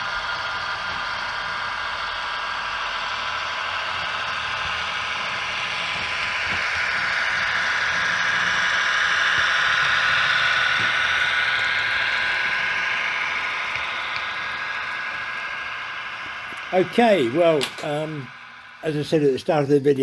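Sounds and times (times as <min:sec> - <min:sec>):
model train whirring on track: 0:00.0 - 0:20.0.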